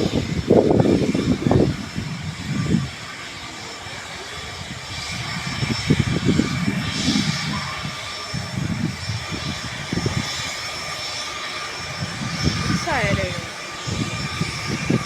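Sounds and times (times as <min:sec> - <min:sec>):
jet engines whining: 0:00.0 - 0:15.0
low rumbling gusts: 0:00.0 - 0:15.0.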